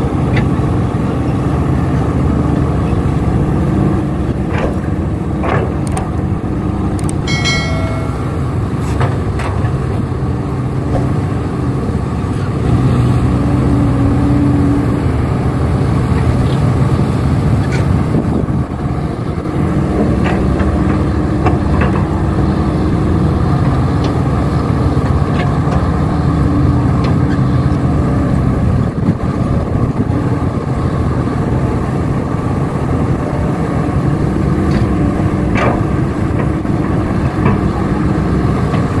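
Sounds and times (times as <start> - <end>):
heavy diesel engines running: 0.0 - 39.0
high-pitched tone: 7.3 - 8.8.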